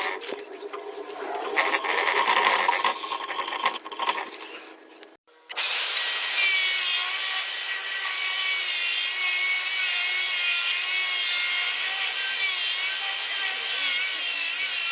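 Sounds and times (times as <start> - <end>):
tool squealing on metal: 0.0 - 4.8.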